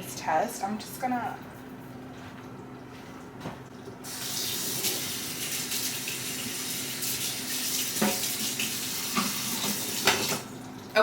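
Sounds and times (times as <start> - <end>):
tap water running into sink: 3.4 - 11.0.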